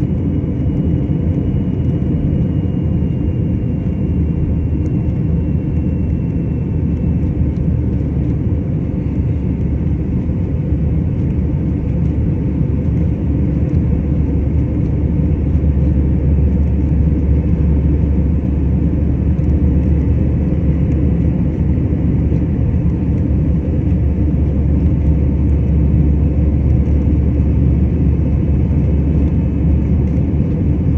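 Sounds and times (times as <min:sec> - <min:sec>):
airliner engines rumbling: 0:00.0 - 0:30.9.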